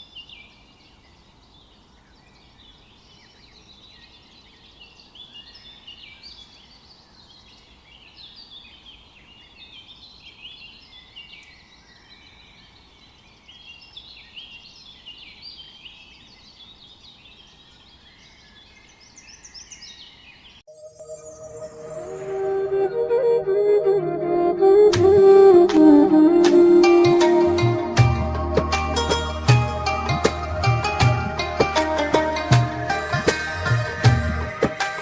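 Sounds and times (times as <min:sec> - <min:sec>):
small birds chirping: 0:00.0 - 0:20.6.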